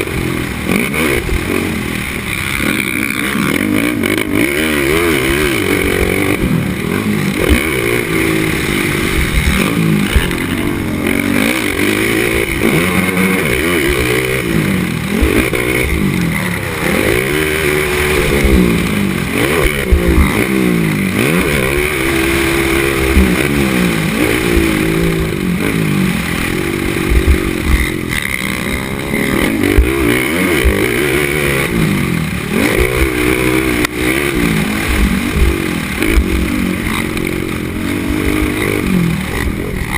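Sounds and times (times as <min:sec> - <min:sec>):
atv engine revving: 0:00.0 - 0:39.9
quad knocking and clattering: 0:26.7 - 0:31.5.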